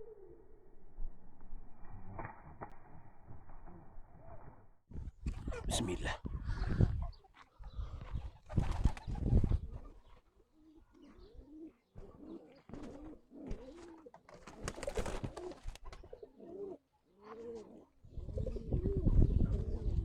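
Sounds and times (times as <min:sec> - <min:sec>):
pigeons cooing: 0:06.5 - 0:20.0.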